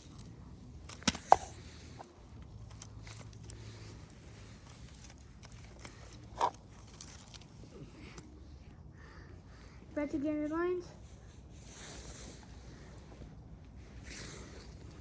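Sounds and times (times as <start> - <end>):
faint toy handling noise: 0.0 - 8.7.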